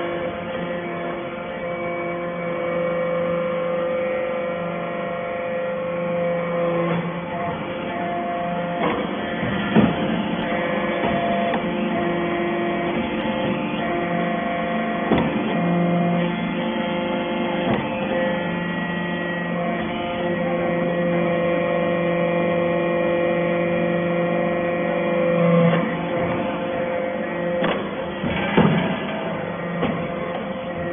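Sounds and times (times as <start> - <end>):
hydraulic machine hum: 0.0 - 30.9
sharp knocks: 8.8 - 11.7, 15.1 - 15.6, 27.6 - 30.9.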